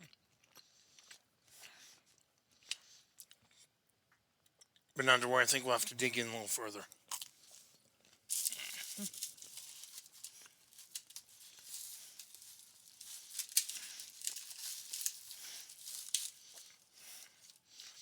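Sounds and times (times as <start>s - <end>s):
bread tearing and crackling: 8.2s - 18.0s.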